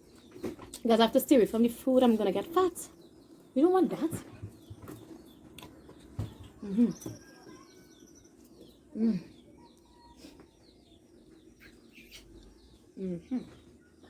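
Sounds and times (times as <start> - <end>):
birds chirping: 0.0 - 14.0
woman murmuring: 6.6 - 7.1, 8.9 - 9.5, 13.0 - 13.6.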